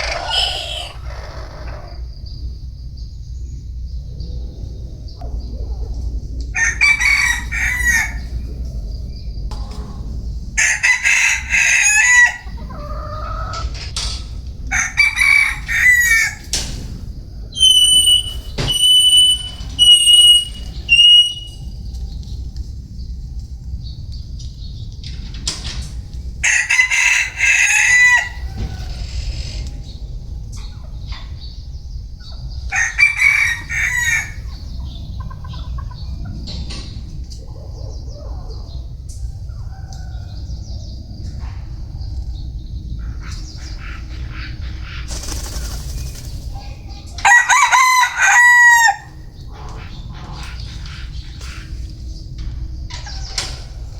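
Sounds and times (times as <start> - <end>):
rooster crowing: 0.0 - 2.1, 6.5 - 8.6, 10.6 - 16.6, 26.4 - 29.8, 32.6 - 34.6, 47.1 - 49.4
steady low rumble: 0.0 - 48.3, 49.0 - 53.9.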